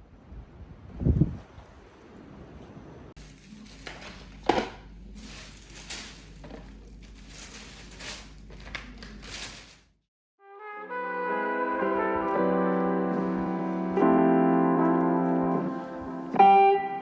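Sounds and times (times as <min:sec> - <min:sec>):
piano music: 0:10.8 - 0:17.0.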